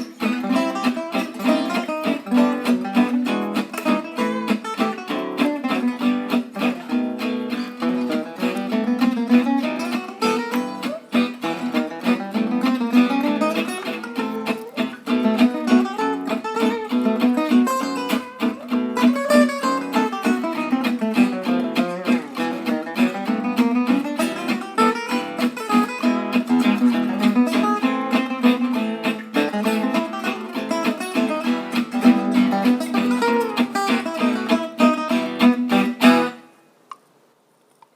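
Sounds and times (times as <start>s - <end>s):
acoustic guitar picking: 0.0s - 36.6s.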